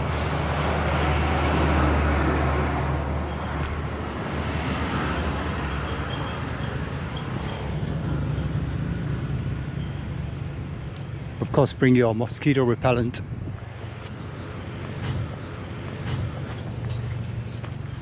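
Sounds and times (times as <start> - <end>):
vehicle passing close by: 0.0 - 6.1
steady traffic noise: 0.0 - 18.0.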